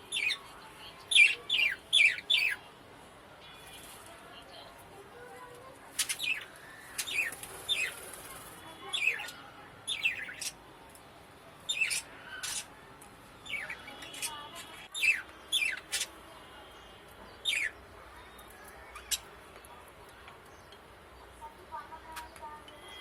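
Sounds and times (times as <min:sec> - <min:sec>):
budgerigars chirping: 0:01.1 - 0:02.6, 0:09.0 - 0:10.6, 0:11.7 - 0:12.7, 0:13.4 - 0:16.1, 0:17.4 - 0:17.8.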